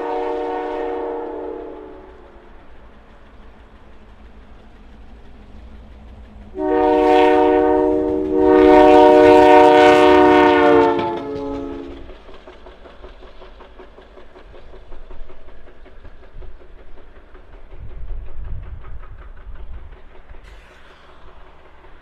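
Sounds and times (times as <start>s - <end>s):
locomotive air horn blasts: 0.0s - 2.3s, 6.6s - 12.1s
locomotive engine rumble: 0.0s - 22.0s.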